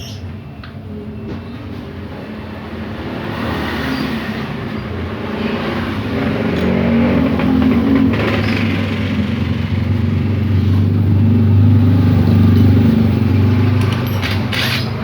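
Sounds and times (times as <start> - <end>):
motor vehicle engine running: 5.5 - 15.0.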